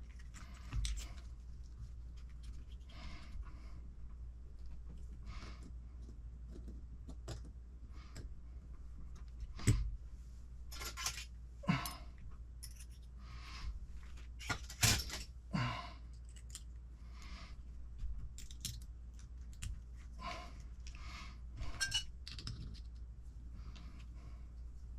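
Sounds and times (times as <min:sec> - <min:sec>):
small parts clicking and rustling: 0:00.0 - 0:03.3, 0:10.7 - 0:12.0, 0:12.6 - 0:13.2, 0:14.0 - 0:15.4, 0:16.1 - 0:16.9, 0:18.0 - 0:21.0, 0:21.6 - 0:23.1
steady low hum: 0:00.0 - 0:24.9.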